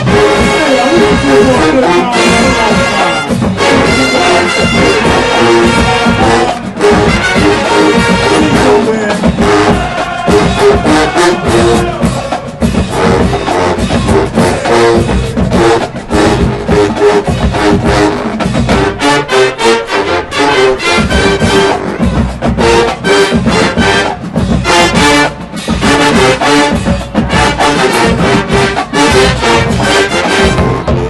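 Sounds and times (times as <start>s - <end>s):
drumline hits: 0.0s - 31.0s
trumpets and trombones: 0.0s - 31.0s.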